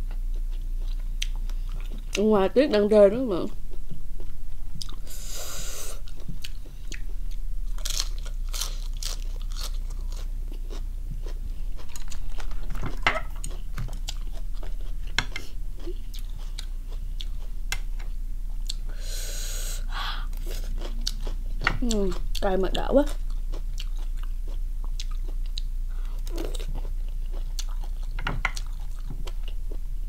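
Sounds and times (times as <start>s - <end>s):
low steady hum: 0.0s - 30.0s
crunching lettuce: 7.7s - 14.9s.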